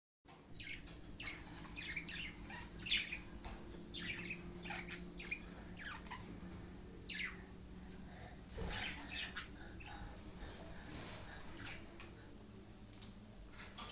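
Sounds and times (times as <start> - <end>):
faint steady hum: 0.3 - 13.9
budgerigars chattering: 0.6 - 7.6, 8.4 - 12.0.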